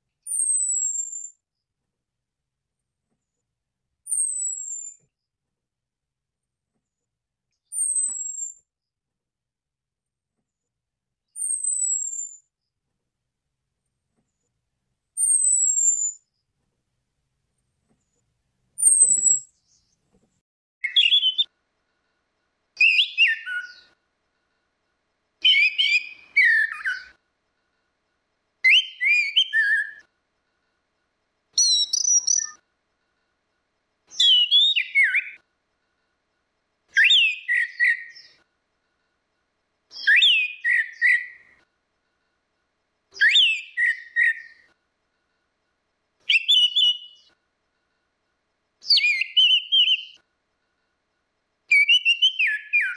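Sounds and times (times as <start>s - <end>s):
thrush singing whistled phrases: 4.1s - 5.0s, 20.8s - 21.5s, 22.8s - 24.0s, 25.4s - 27.2s, 28.6s - 30.1s, 31.6s - 32.6s, 34.1s - 35.4s, 36.9s - 38.4s, 39.9s - 41.6s, 43.2s - 44.7s, 46.3s - 47.4s, 48.8s - 50.2s, 51.7s - 52.9s.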